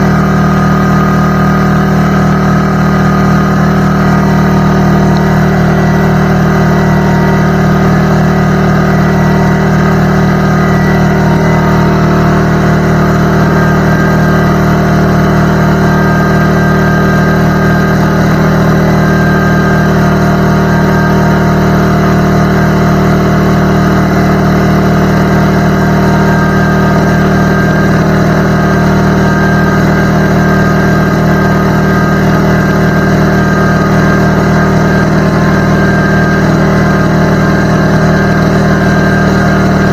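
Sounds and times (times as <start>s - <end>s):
air compressor running: 0.0s - 39.9s.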